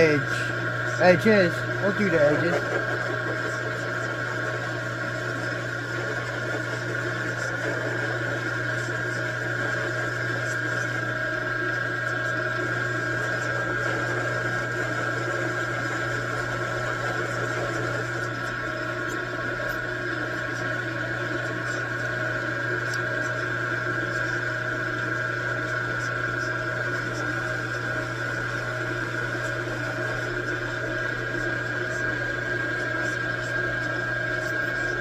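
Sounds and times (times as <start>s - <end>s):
metal lathe humming and whining: 0.0s - 35.0s.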